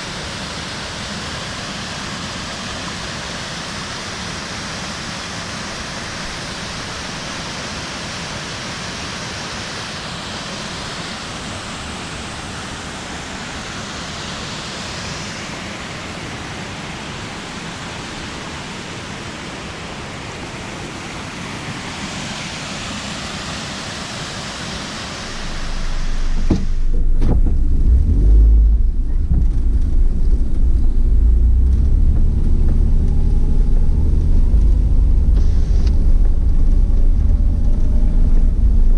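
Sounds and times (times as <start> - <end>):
waterfall rushing: 0.0 - 27.1
loud low rumble: 25.2 - 38.9.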